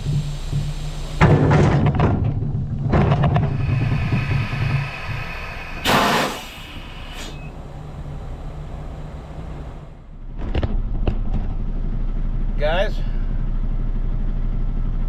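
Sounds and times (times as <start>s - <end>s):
loud air hiss: 0.0s - 1.2s, 3.6s - 7.5s
diesel truck engine running: 0.0s - 15.0s.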